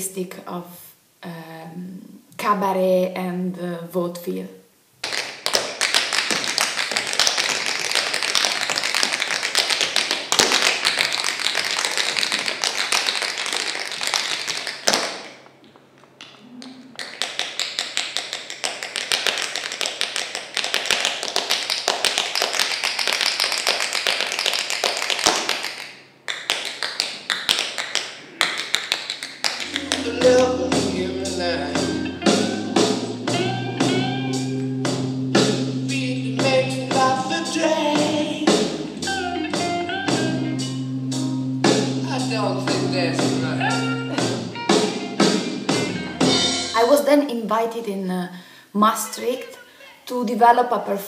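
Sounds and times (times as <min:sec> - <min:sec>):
tap shoes on hard floor: 0:05.1 - 0:12.7.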